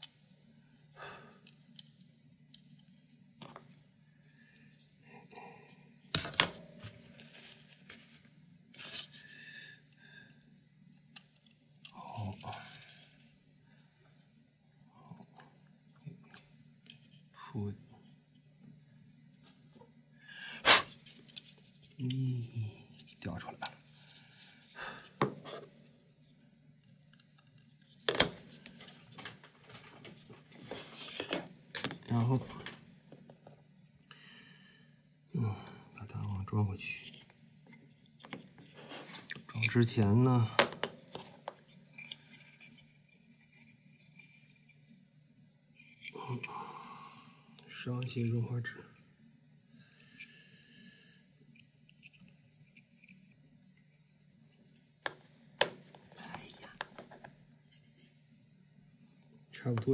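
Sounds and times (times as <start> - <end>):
steady low hum: 0.1 - 59.9
scraping and rustling: 27.9 - 32.7.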